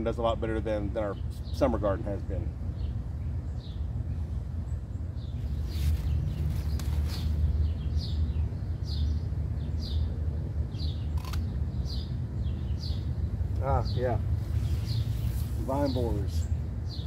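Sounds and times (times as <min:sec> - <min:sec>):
bird chirping: 0:00.0 - 0:17.0
steady low rumble: 0:00.0 - 0:17.0
sharp clicks: 0:11.1 - 0:11.5.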